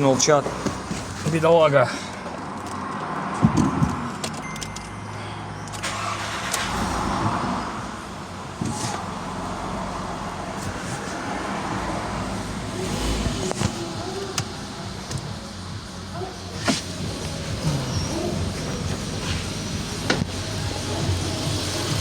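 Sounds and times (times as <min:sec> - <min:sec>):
petrol engine running: 0:05.7 - 0:22.0.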